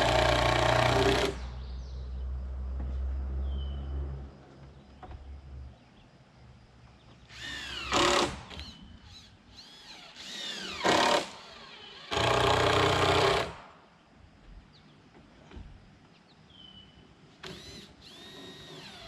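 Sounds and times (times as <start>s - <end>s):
power drill motor running: 0.0s - 1.4s, 9.5s - 13.5s, 17.4s - 19.0s.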